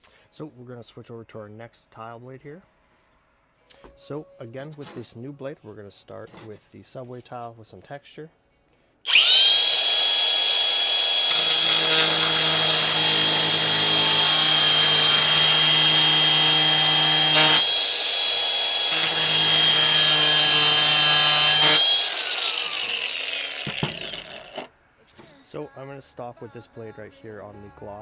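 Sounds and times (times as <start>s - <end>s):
angle grinder grinding tile: 9.1s - 24.7s.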